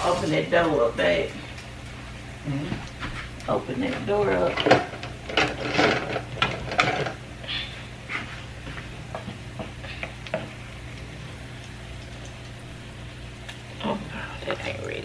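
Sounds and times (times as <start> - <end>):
food sizzling in oil: 0.0 - 1.3
oil popping and crackling: 9.4 - 15.0.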